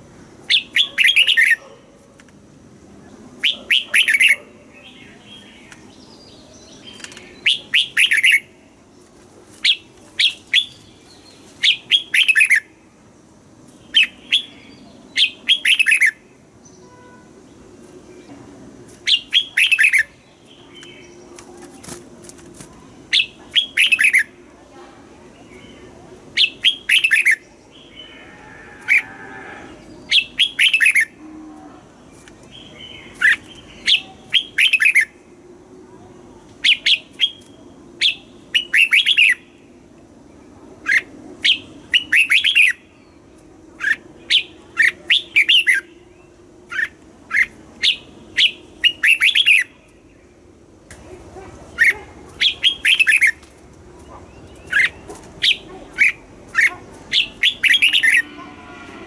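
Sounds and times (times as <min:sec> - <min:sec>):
bird singing whistled notes: 0:13.9 - 0:17.2, 0:26.4 - 0:27.9, 0:46.7 - 0:49.8, 0:57.2 - 0:58.3.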